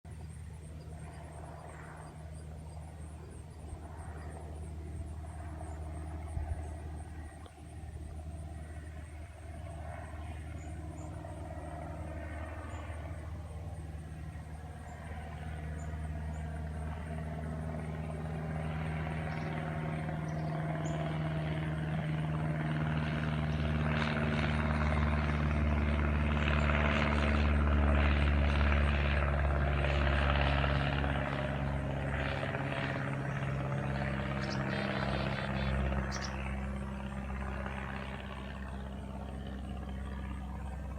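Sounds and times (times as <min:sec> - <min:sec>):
light aircraft engine and propeller: 0:00.0 - 0:40.9.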